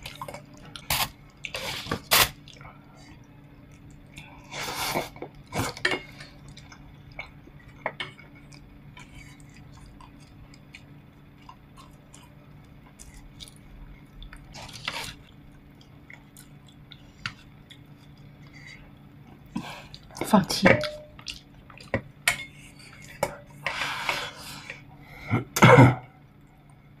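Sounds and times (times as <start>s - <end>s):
quiet chewing: 0.0s - 23.9s
steady low hum: 0.0s - 27.0s.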